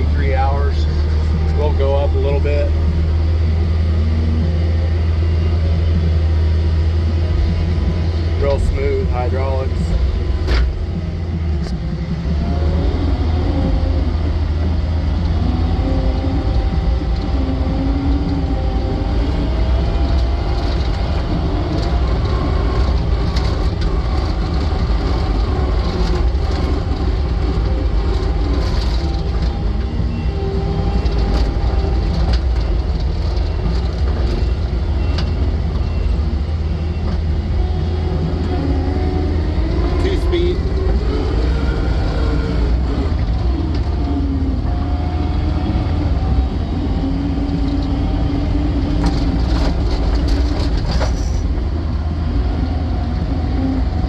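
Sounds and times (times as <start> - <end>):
diesel engine running: 0.0 - 54.0
faint whining tones: 0.0 - 54.0.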